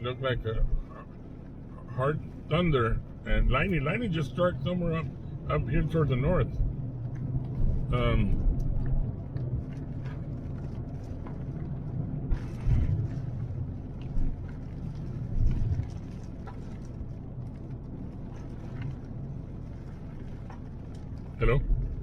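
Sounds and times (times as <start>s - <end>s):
engine and road rumble: 0.0s - 22.0s
rain tapping on car: 0.0s - 22.0s.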